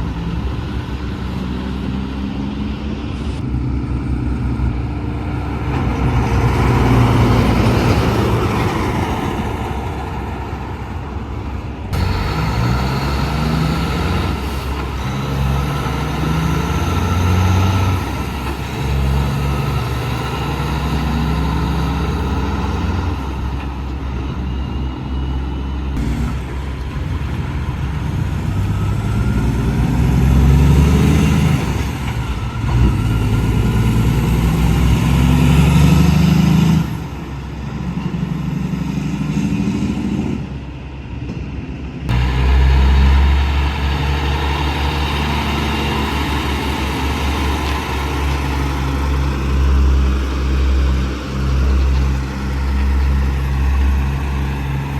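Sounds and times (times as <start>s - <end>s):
truck diesel engines running: 0.0s - 54.9s.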